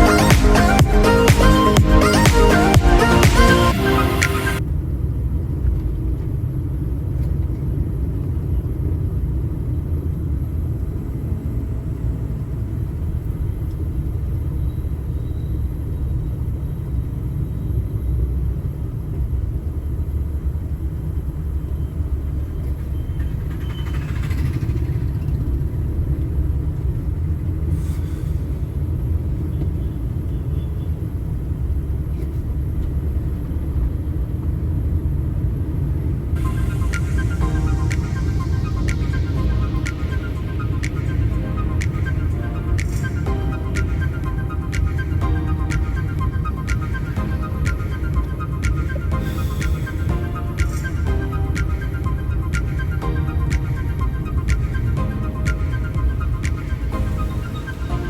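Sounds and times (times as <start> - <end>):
tyres on road: 0.0 - 58.0
vehicle engine rumble: 0.0 - 58.0
brief high-pitched sound: 36.4 - 58.0.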